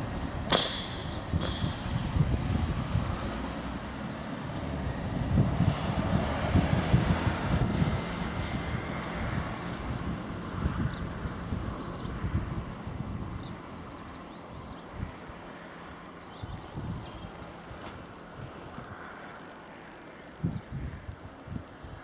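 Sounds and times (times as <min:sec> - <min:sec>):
diesel train rumbling: 0:00.0 - 0:10.6
wind buffeting microphone: 0:00.0 - 0:19.2, 0:20.2 - 0:22.0.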